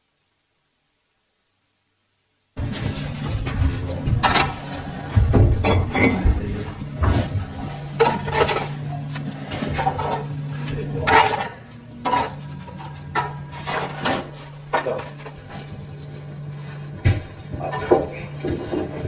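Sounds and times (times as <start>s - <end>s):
steady low hum: 0.0s - 19.0s
knocking and scraping on wood: 2.6s - 8.7s.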